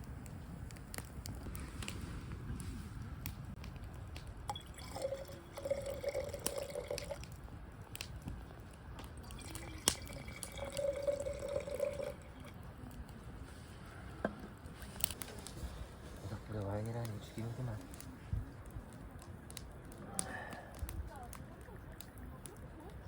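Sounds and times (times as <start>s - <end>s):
liquid pouring into container: 4.5s - 7.4s, 9.2s - 12.6s.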